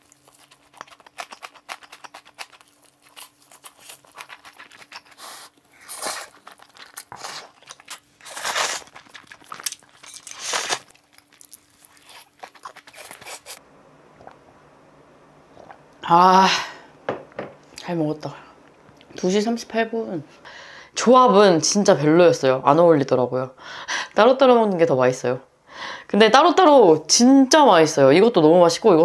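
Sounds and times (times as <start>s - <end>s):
crunchy chewing: 0.0s - 13.6s.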